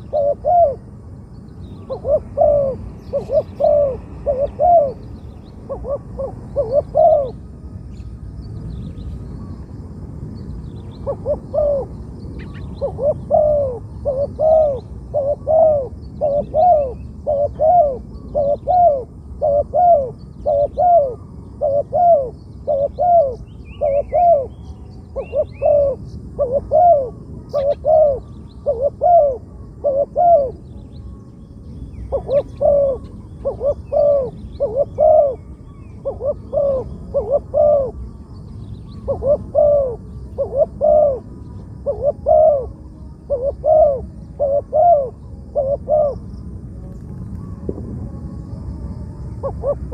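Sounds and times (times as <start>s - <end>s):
dove cooing: 0.0s - 1.0s, 1.8s - 7.5s, 10.9s - 30.8s, 31.9s - 47.9s, 49.3s - 49.9s
small bird chirping: 0.0s - 42.7s.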